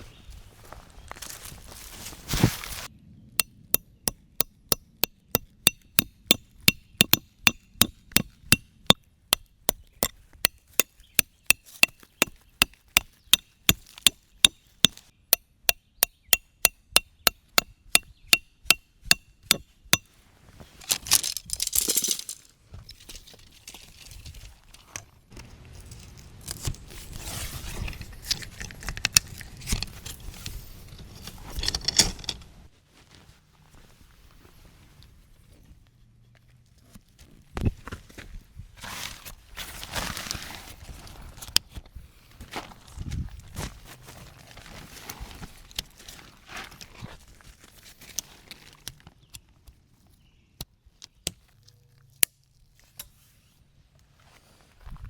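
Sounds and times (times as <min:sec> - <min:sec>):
hammer striking metal: 0:03.4 - 0:09.8, 0:15.7 - 0:20.1
rustling and handling noise: 0:19.6 - 0:50.0.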